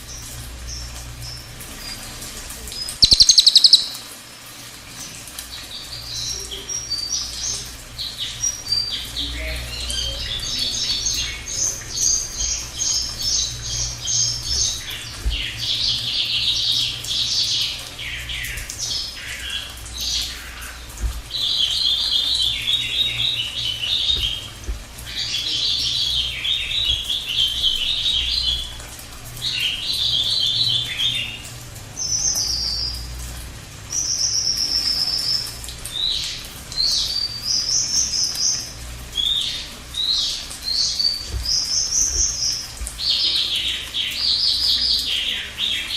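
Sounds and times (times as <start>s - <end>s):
bird chattering trills: 2.9s - 4.0s
high whistled bird notes: 3.0s - 4.0s.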